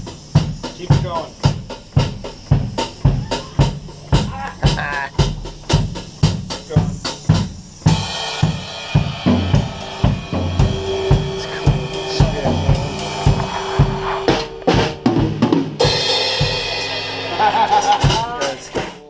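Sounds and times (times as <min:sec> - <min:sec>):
cymbal crashes: 0:00.0 - 0:19.0
drum kit groove: 0:00.0 - 0:19.0
held note: 0:10.0 - 0:16.6.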